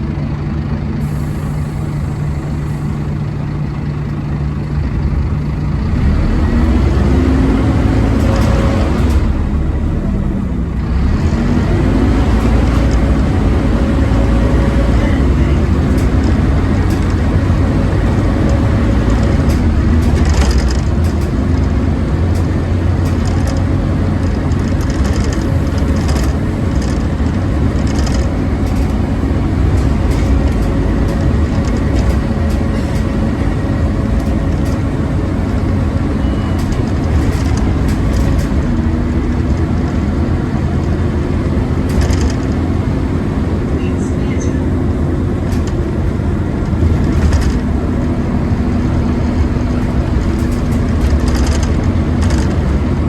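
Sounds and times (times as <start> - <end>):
bus engine drone: 0.0 - 53.0
clicks and rattles: 15.8 - 35.7, 36.6 - 40.0, 41.8 - 42.7, 49.0 - 52.9.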